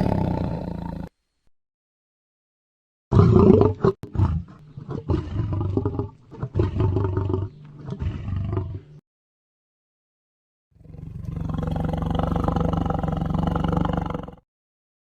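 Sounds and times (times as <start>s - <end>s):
tiger roaring and growling: 0.0s - 1.1s, 3.1s - 9.0s, 10.8s - 14.4s.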